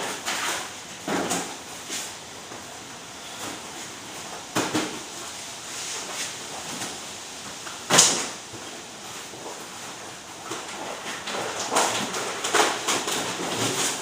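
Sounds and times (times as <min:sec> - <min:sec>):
covers being rolled up: 0:07.7 - 0:14.0.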